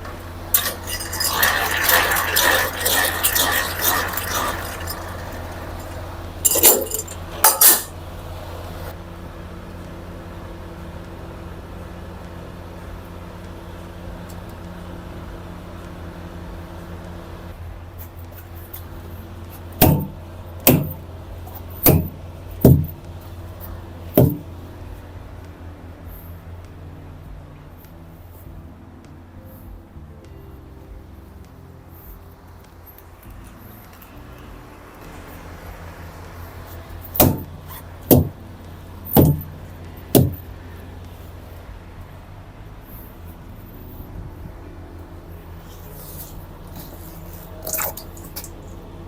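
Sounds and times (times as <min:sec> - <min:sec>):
low hum: 0:00.0 - 0:49.0
loud knocks: 0:19.8 - 0:21.0, 0:21.8 - 0:23.0, 0:24.2 - 0:24.5, 0:37.1 - 0:38.4, 0:39.1 - 0:40.4
sharp ringing clunks: 0:19.8 - 0:25.0, 0:37.0 - 0:38.4, 0:39.0 - 0:40.7.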